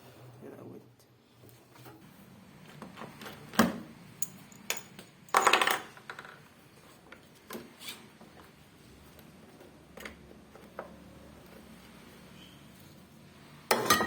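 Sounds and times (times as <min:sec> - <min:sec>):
metal parts and tools clinking: 0:04.2 - 0:06.4.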